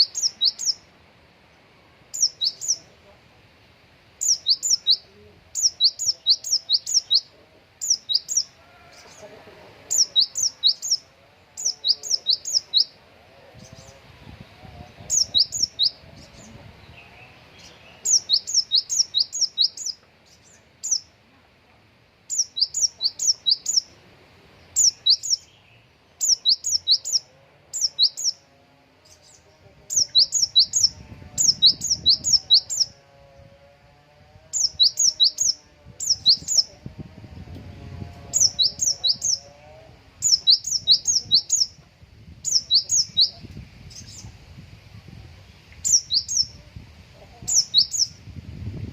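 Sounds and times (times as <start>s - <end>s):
songbird singing high notes: 0.0s - 0.9s, 2.1s - 2.9s, 4.2s - 9.2s, 9.9s - 13.0s, 13.6s - 21.1s, 22.3s - 24.0s, 24.7s - 33.0s, 34.5s - 36.8s, 38.3s - 41.8s, 42.4s - 44.4s, 45.7s - 46.6s, 47.4s - 48.2s.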